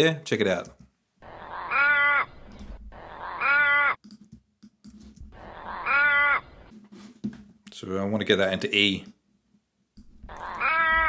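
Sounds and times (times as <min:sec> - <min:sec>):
raven cawing: 0:01.2 - 0:04.0, 0:05.3 - 0:06.7, 0:10.2 - 0:11.0.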